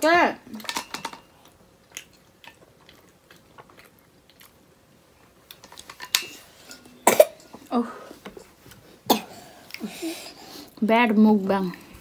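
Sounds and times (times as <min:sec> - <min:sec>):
person chewing food: 0:01.3 - 0:10.8.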